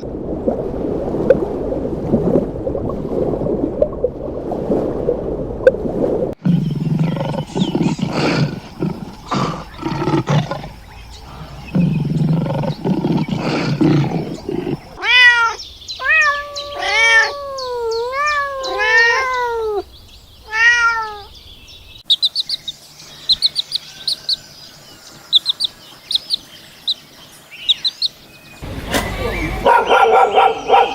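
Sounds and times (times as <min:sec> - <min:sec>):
cat meowing: 0:14.0 - 0:19.8, 0:20.5 - 0:21.3.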